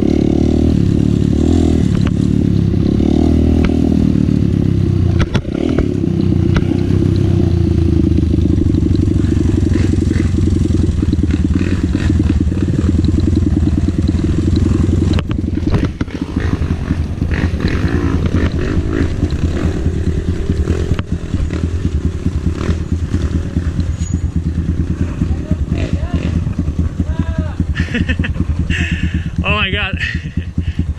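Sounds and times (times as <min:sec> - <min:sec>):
dirt bike engine running: 0:00.0 - 0:30.9
knocks and clatter: 0:05.1 - 0:07.4, 0:08.4 - 0:27.1.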